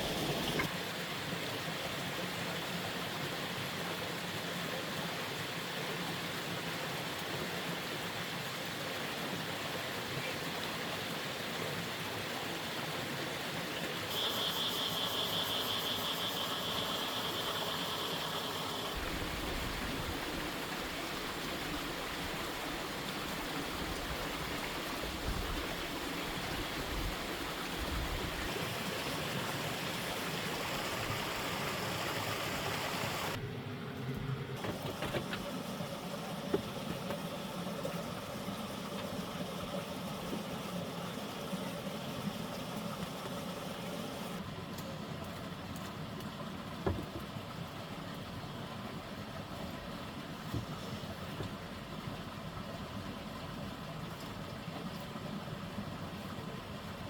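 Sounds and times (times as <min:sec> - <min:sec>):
running water rushing: 0:00.0 - 0:57.0
high buzzing tone: 0:14.1 - 0:19.0.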